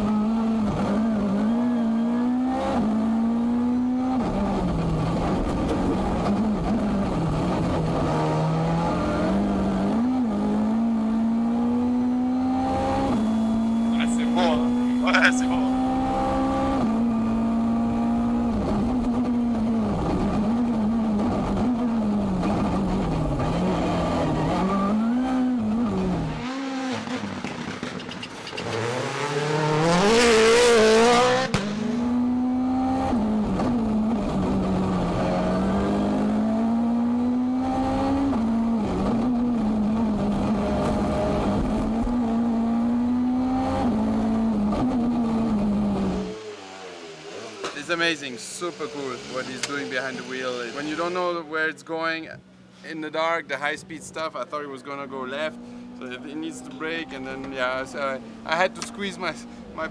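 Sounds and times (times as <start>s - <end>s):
rally car engine revving: 0.0s - 51.8s, 54.3s - 59.9s
loud hissing rush: 46.6s - 51.3s.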